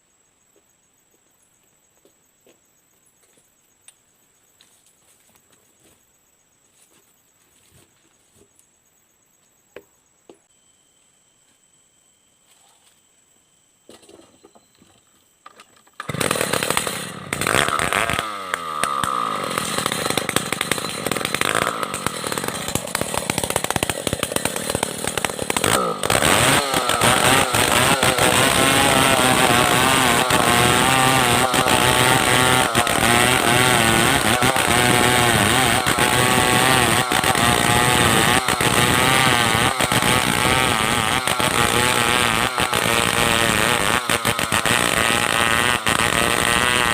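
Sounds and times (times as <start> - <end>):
chainsaw cutting wood: 15.5 - 46.9.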